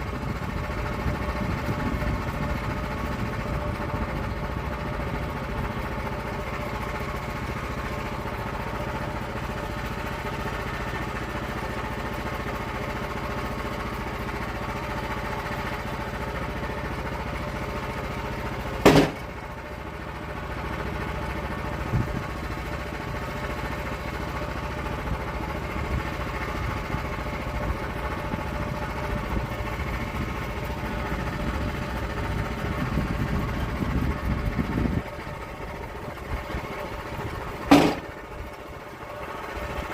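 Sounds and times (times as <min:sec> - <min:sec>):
log mill engine running: 0:00.0 - 0:39.9
sharp knock: 0:18.9 - 0:19.3, 0:37.7 - 0:38.1.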